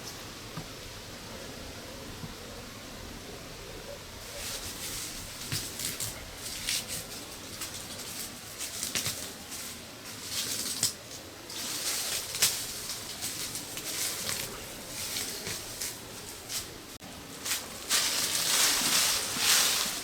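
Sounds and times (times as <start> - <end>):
steady hiss: 0.0 - 20.0
rustling: 3.7 - 20.0
light crackles and knocks: 4.2 - 19.9.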